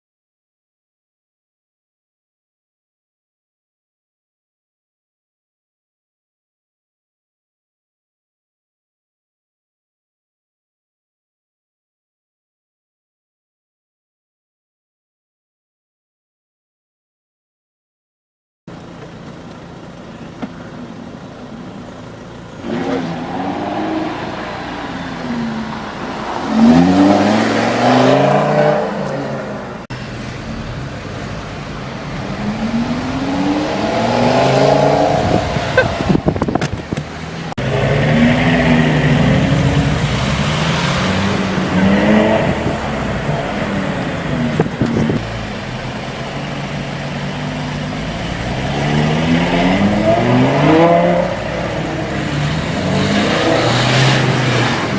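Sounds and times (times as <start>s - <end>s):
sports car accelerating hard: 22.0s - 54.9s.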